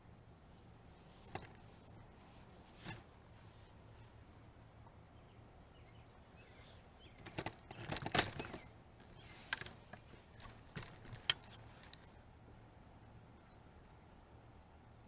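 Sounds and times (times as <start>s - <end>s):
faint steady hum: 0.0s - 15.0s
sharp clicks and crackles: 7.2s - 12.1s.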